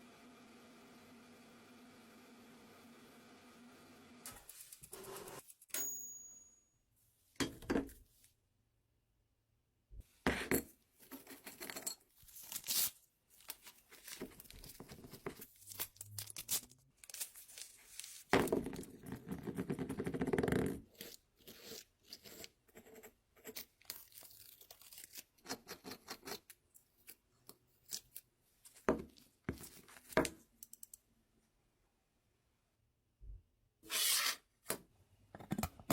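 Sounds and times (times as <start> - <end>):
small clicks: 30.6 - 31.1
scraping sounds: 33.8 - 34.5.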